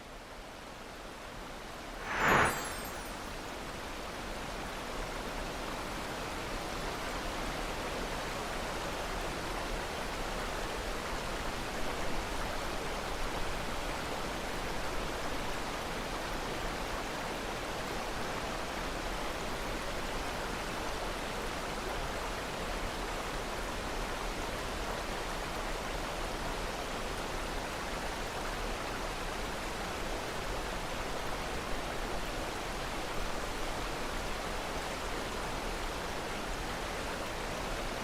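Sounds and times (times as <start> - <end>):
short loud burst: 2.0 - 3.4.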